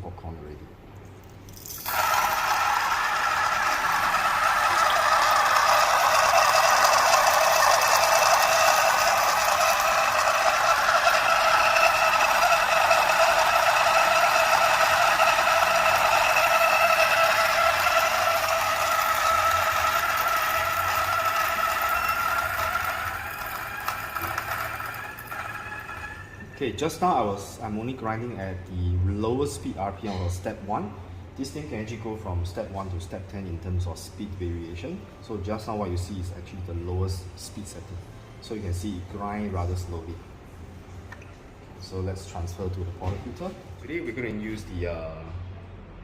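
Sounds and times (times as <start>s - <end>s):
coffee grinder grinding beans: 1.6s - 26.6s.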